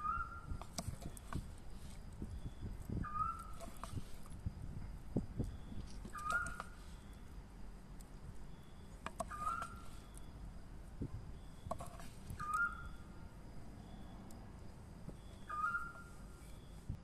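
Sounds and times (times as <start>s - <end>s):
bird whistled call: 0.0s - 0.6s, 2.4s - 3.6s, 5.6s - 7.1s, 9.2s - 10.3s, 12.4s - 13.0s, 15.2s - 16.6s.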